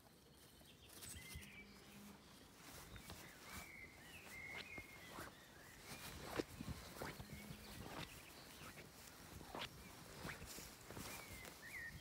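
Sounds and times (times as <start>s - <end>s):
faint bird chirps: 0.0s - 12.0s
soft clicks and rustles: 0.5s - 12.0s.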